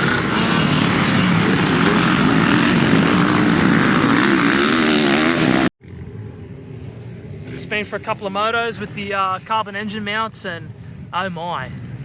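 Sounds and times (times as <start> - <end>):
motocross bike engine revving: 0.0 - 5.7.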